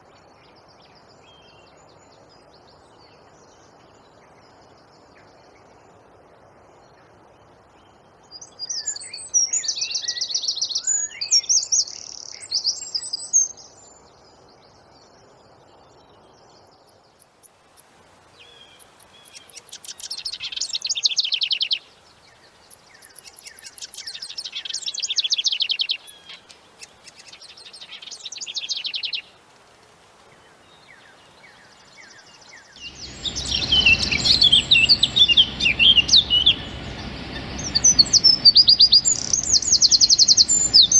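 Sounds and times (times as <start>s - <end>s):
bird chirping: 8.3s - 29.4s, 30.4s - 40.9s
wren singing rapid trills: 16.4s - 29.3s, 30.8s - 40.9s
low rumble: 32.8s - 40.9s.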